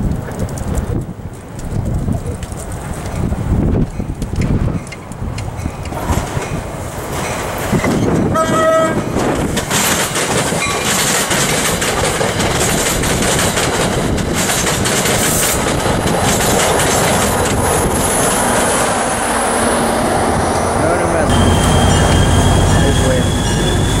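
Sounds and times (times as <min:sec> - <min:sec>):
train coaches clickety-clacking: 0:00.0 - 0:19.8, 0:20.4 - 0:24.0
diesel locomotive passing: 0:02.6 - 0:24.0
train horn blast: 0:08.3 - 0:09.1, 0:21.3 - 0:24.0.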